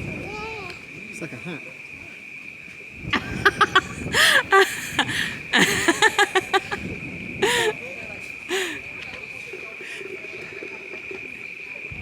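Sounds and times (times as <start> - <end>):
insects chirring: 0.0 - 12.0
high-pitched laughter and squeals: 3.2 - 7.8, 8.5 - 8.8.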